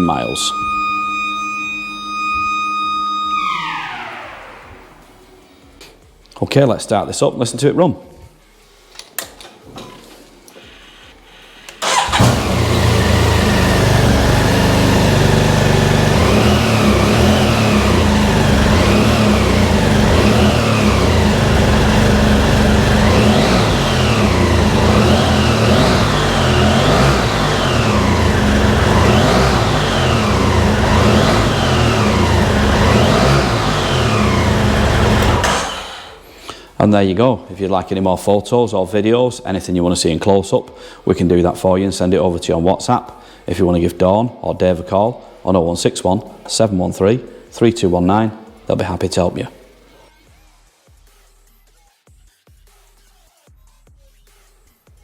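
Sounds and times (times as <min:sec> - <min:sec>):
motorcycle engine starting and revving: 0:00.0 - 0:05.2, 0:11.8 - 0:36.3.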